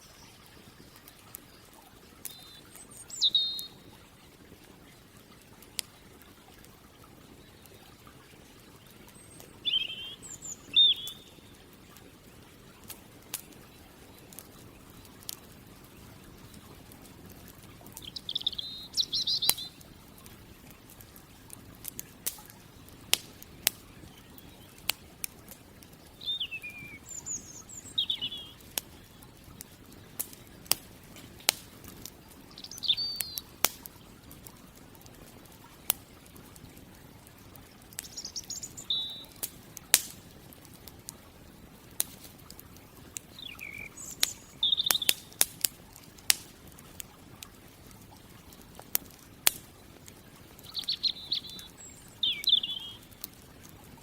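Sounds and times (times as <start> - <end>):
campfire crackling and popping: 0.0 - 54.0
bird twittering: 2.2 - 3.8, 9.2 - 11.5, 18.0 - 19.8, 26.2 - 28.7, 32.5 - 33.5, 38.0 - 39.4, 43.3 - 45.2, 50.7 - 53.1.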